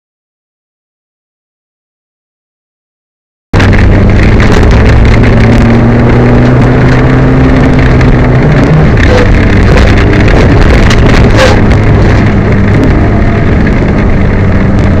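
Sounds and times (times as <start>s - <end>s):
distorted rally car engine: 3.6s - 15.0s
road and wind noise: 3.6s - 15.0s.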